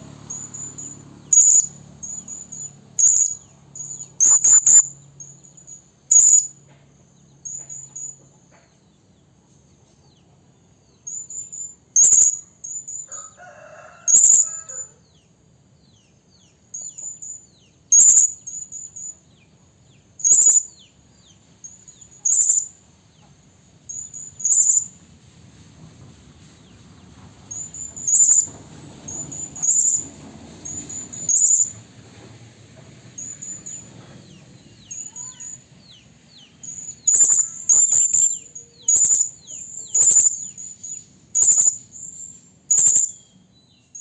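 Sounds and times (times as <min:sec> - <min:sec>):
high-pitched parrot calls: 0:00.3 - 0:05.0, 0:06.1 - 0:06.6, 0:11.1 - 0:13.1, 0:13.7 - 0:14.9, 0:17.9 - 0:19.1, 0:20.2 - 0:20.7, 0:22.1 - 0:22.7, 0:34.9 - 0:35.6, 0:36.6 - 0:42.0, 0:42.7 - 0:43.2.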